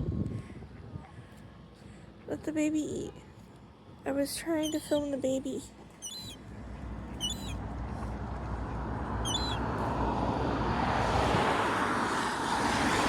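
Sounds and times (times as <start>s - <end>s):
gull peeping calls: 6.0s - 6.4s, 7.2s - 7.6s, 9.3s - 9.6s.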